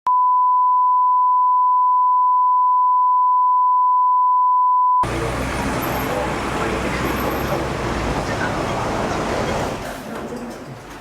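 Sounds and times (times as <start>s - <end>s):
steady test tone beep: 0.1s - 5.0s.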